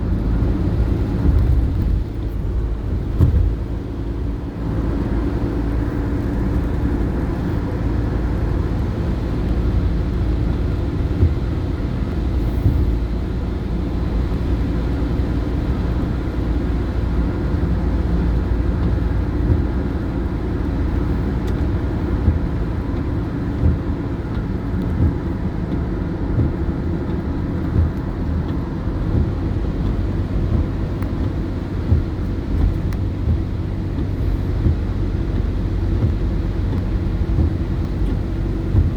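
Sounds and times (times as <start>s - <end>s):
motor vehicle rumbling: 0.0s - 38.9s.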